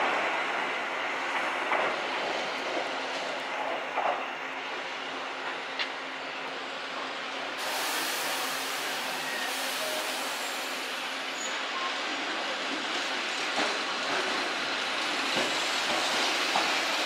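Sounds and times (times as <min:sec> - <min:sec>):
brighter hiss: 0:07.6 - 0:11.1
electric train running hiss: 0:07.6 - 0:11.4.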